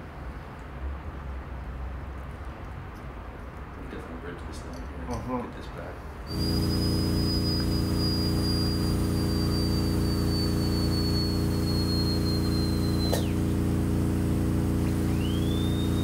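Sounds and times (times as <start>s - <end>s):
steady low hum: 6.0s - 16.0s
dental drill whining: 6.3s - 13.6s, 14.8s - 16.0s.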